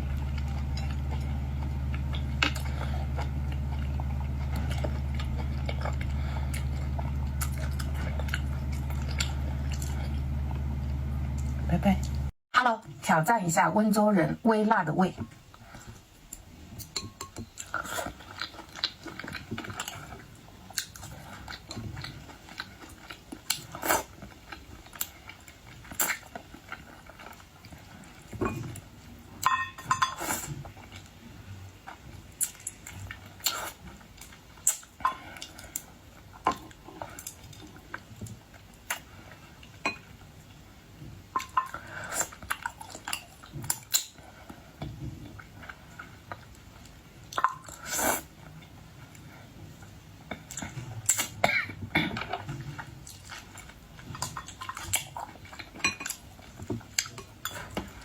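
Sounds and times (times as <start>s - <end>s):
chewing: 0.0s - 12.3s, 15.4s - 40.6s, 41.3s - 51.4s, 52.0s - 58.0s
tableware clinking: 29.5s - 30.2s.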